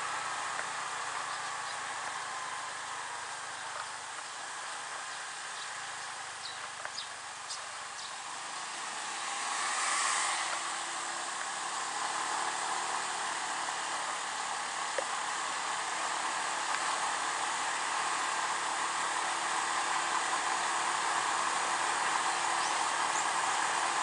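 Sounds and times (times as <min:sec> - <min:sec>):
wind and road noise: 0:00.0 - 0:24.0
light ticks: 0:06.4 - 0:07.6, 0:14.9 - 0:15.2, 0:16.7 - 0:16.9.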